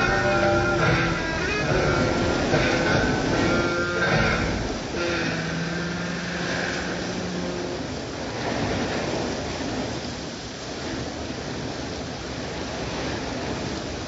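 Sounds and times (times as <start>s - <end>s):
heavy rain: 0.0s - 14.0s.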